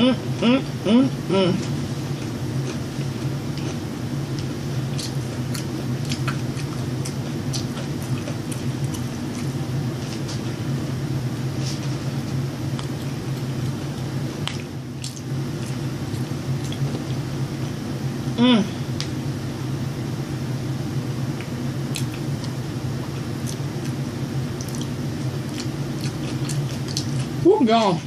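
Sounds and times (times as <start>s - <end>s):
steady low hum: 0.0s - 28.0s
person biting and chewing food: 1.6s - 10.7s, 11.5s - 17.8s, 21.3s - 27.4s.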